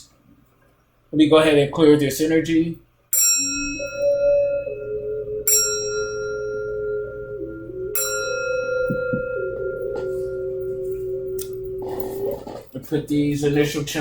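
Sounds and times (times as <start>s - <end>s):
bell-like instrument struck: 3.2s - 12.7s
low held tone changing pitch: 3.2s - 14.0s.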